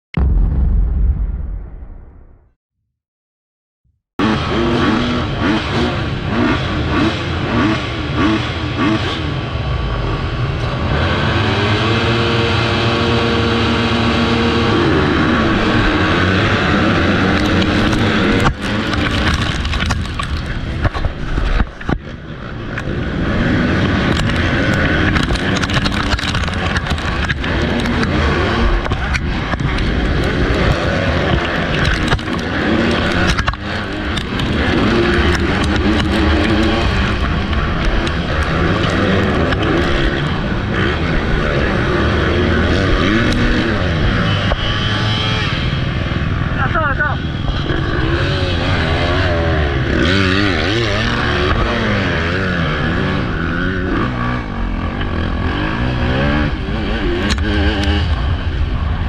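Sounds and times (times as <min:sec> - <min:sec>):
motocross bike engine revving: 0:04.2 - 0:59.0
knocks and clatter: 0:15.7 - 0:22.9, 0:23.7 - 0:41.1
sharp ticks: 0:24.0 - 0:40.4.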